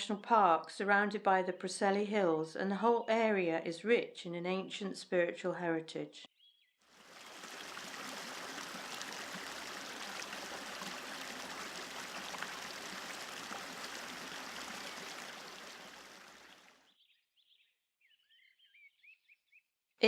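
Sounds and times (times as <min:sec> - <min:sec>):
faint bird chirp: 0:06.3 - 0:07.3, 0:16.4 - 0:19.8
stream rushing water: 0:07.0 - 0:16.7.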